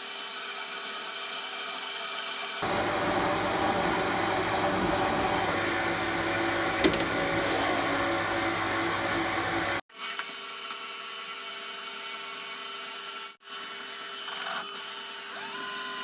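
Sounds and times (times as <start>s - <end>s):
metal lathe humming and whining: 2.6s - 9.8s.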